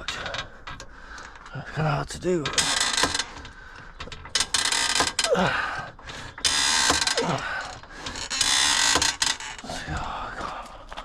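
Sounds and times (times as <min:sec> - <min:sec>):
falling-pitch creaks: 0:00.0 - 0:10.1
trolley jack ratcheting: 0:02.1 - 0:09.6.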